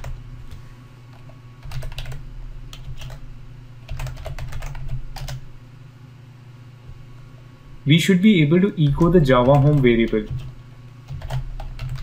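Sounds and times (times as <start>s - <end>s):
low steady hum: 0.0s - 12.0s
typing on a keyboard: 1.2s - 3.2s, 3.9s - 5.4s, 9.4s - 10.5s, 11.1s - 12.0s.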